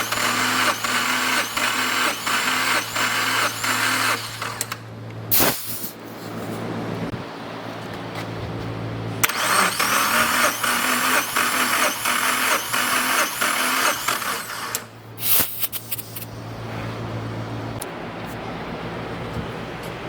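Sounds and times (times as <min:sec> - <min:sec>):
engine cranking on starter motor: 0:00.0 - 0:04.9, 0:09.2 - 0:16.2
short sharp burst of noise: 0:05.3 - 0:06.1, 0:15.2 - 0:16.4
steady low hum: 0:14.8 - 0:20.0.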